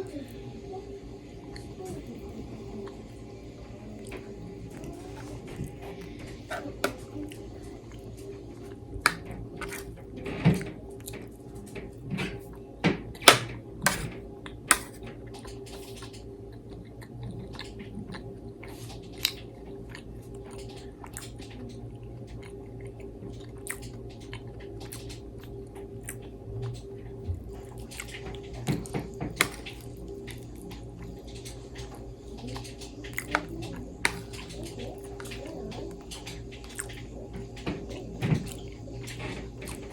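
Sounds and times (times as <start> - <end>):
steady low hum: 0.0 - 39.9
chewing and eating mouth sounds: 13.2 - 39.9.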